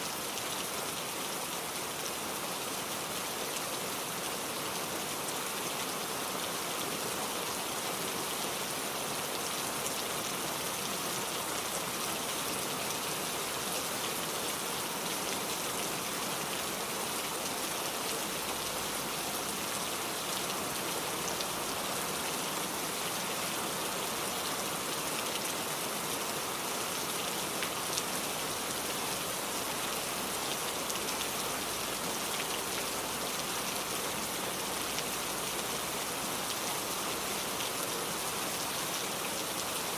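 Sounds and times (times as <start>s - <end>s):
rain pattering: 9.3s - 39.9s.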